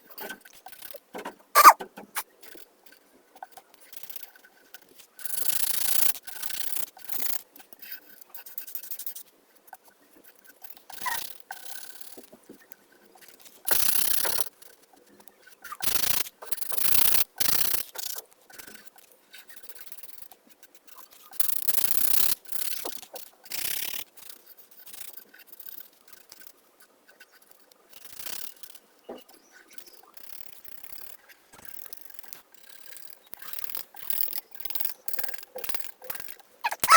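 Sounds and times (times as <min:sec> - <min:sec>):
coloring strokes rubbing on paper: 0:01.6 - 0:01.8.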